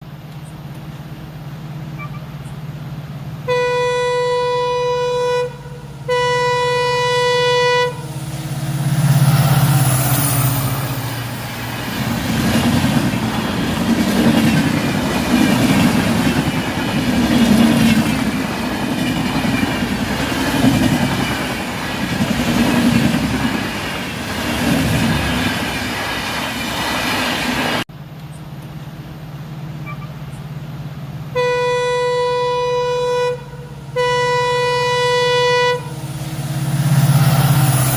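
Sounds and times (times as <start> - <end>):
train horn blasts: 3.4 - 8.2, 31.3 - 36.0
train rumbling and clattering: 5.9 - 31.3, 34.8 - 37.9.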